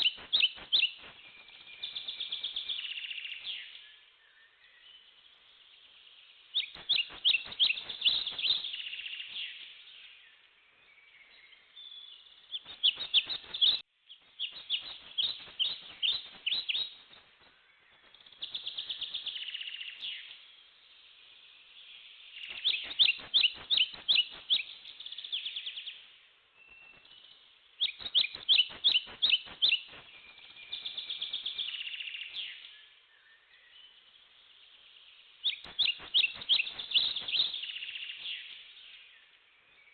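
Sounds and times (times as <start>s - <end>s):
soft bird chattering: 35.5s - 37.9s.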